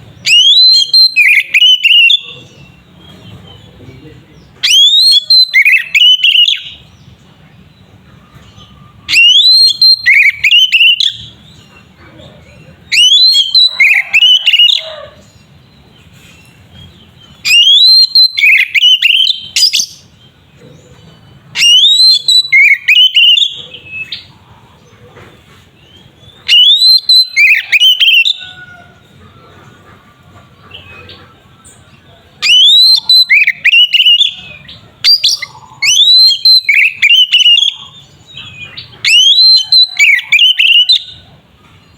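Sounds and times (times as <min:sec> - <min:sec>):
bird singing whistled notes: 0:00.0 - 0:03.6, 0:04.3 - 0:07.1, 0:08.4 - 0:11.7, 0:12.9 - 0:14.9, 0:17.2 - 0:20.4, 0:21.2 - 0:24.3, 0:26.2 - 0:28.6, 0:32.4 - 0:41.2.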